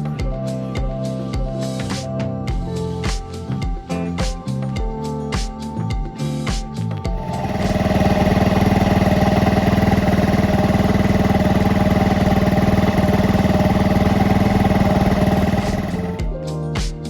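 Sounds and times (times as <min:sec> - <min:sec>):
motorcycle engine idling: 0:07.1 - 0:16.3.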